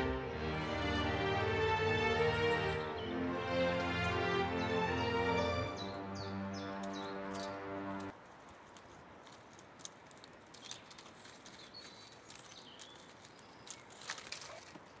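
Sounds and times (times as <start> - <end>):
small birds chirping: 5.7 - 7.6, 9.2 - 15.0
light clicks and rustles: 6.8 - 15.0.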